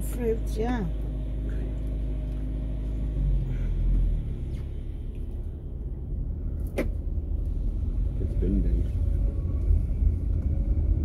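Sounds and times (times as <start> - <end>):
car engine from inside cabin: 0.0 - 11.0.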